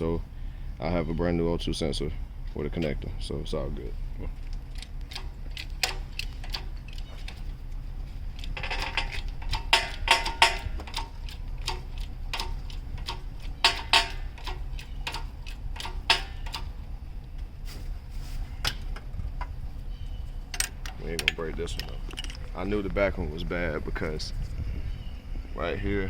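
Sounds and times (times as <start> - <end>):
steady low hum: 0.0 - 26.0
tool clicks and metallic knocks: 4.5 - 7.5, 8.4 - 16.8, 20.5 - 22.5.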